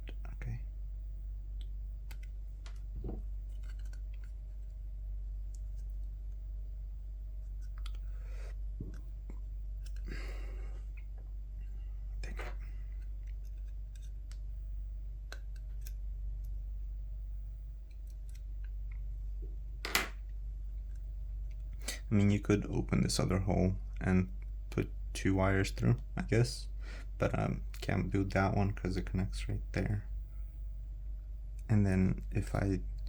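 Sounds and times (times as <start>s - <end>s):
steady low hum: 0.0s - 33.0s
clicks and rustles of small parts: 2.1s - 4.7s.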